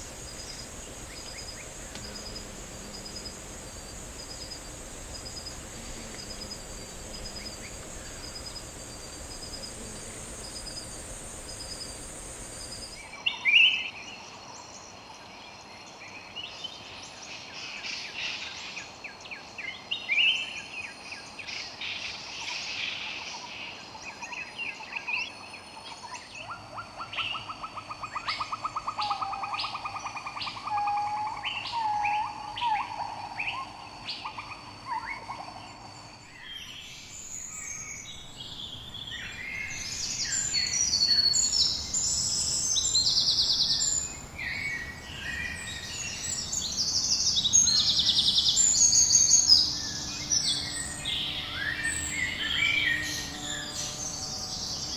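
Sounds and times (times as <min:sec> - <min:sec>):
pulsing chirp: 0:00.0 - 0:13.0
high insect buzz: 0:00.0 - 0:13.2, 0:35.1 - 0:54.9.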